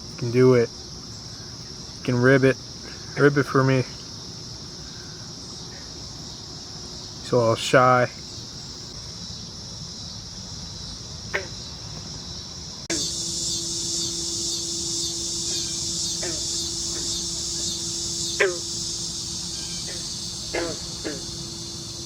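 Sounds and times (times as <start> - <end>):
crickets chirring: 0.0 - 22.0
steady low hum: 0.0 - 22.0
short sharp falling calls: 12.9 - 22.0.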